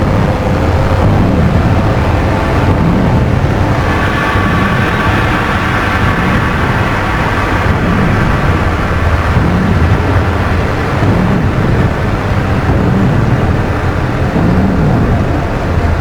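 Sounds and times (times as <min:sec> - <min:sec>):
dark ambient drone music: 0:00.0 - 0:16.0
low tone bending in pitch: 0:00.4 - 0:11.8.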